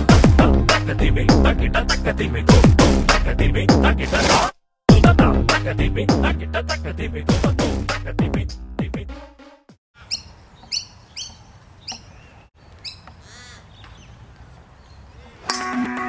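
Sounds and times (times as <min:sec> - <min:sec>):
bird calling: 0:10.0 - 0:15.6
outdoor background noise: 0:10.0 - 0:16.0
guitar music: 0:15.5 - 0:16.0.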